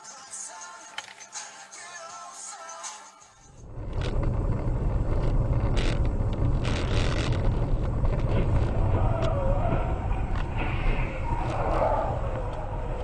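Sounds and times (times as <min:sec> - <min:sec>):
car engine and road noise: 0:03.2 - 0:13.0.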